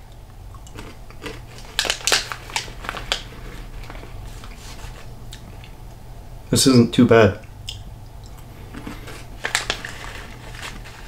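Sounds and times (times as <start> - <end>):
person chewing crunchily: 0.5 - 5.8, 8.2 - 11.0.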